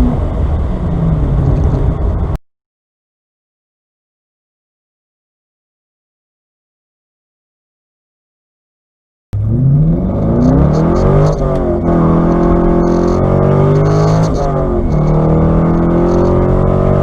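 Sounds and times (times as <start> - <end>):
car engine accelerating hard: 9.4 - 17.0.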